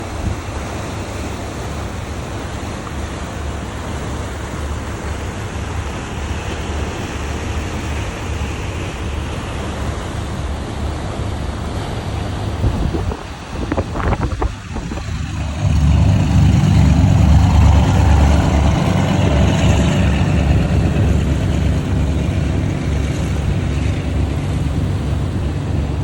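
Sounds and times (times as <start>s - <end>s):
boat engine drone: 0.0s - 26.0s
water along hull: 0.0s - 26.0s
wind on microphone: 11.4s - 26.0s.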